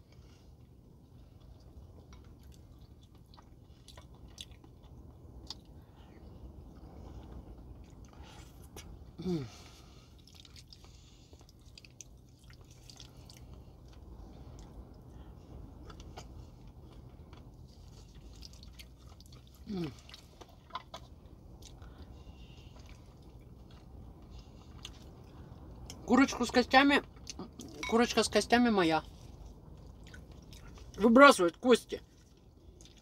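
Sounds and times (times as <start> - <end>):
chewing and wet mouth clicks: 1.3 - 5.8, 10.2 - 14.9, 15.8 - 26.0, 29.4 - 31.0, 32.2 - 33.0.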